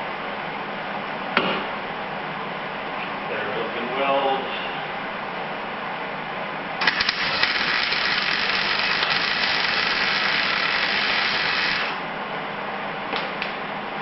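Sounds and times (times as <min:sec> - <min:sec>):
welding arc crackling: 0:06.8 - 0:12.0.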